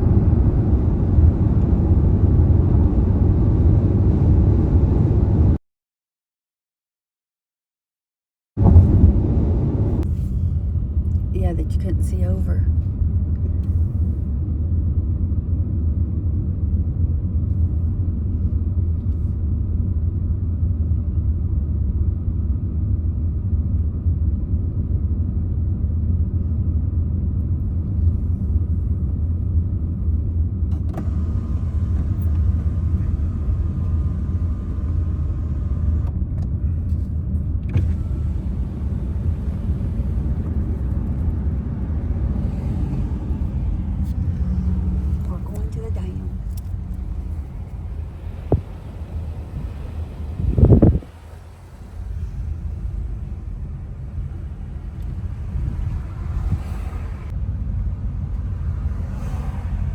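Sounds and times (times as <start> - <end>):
car road rumble: 0.0 - 5.6, 8.6 - 59.9
faint whine: 31.0 - 59.3.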